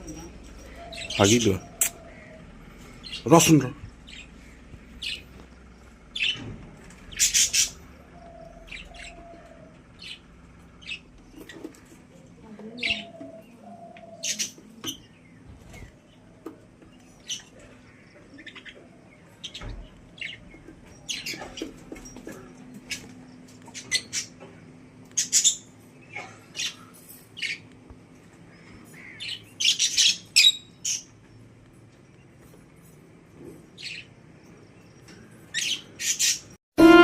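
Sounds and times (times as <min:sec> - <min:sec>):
budgerigars chirping: 0:07.1 - 0:10.2.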